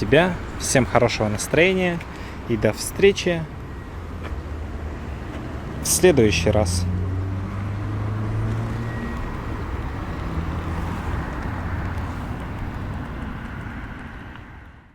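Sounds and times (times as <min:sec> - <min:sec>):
vehicle engine humming: 0:00.0 - 0:14.9.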